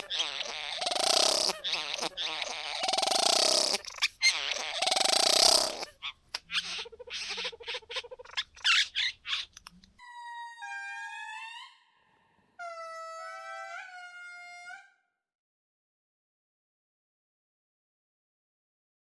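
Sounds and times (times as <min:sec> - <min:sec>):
bird harsh buzzing calls: 0:00.0 - 0:09.4.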